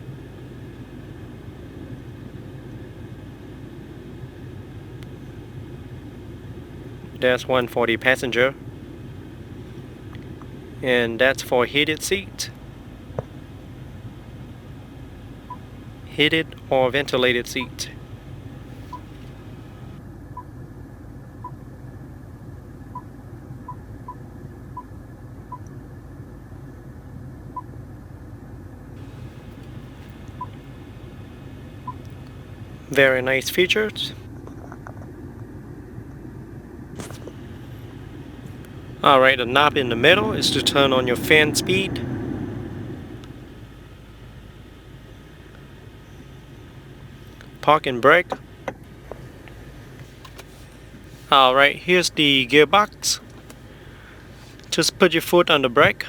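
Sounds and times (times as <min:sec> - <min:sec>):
car engine idling: 0:00.0 - 0:20.0, 0:29.0 - 0:34.3, 0:37.0 - 0:56.0
low cabin hum: 0:00.0 - 0:21.5, 0:28.8 - 0:56.0.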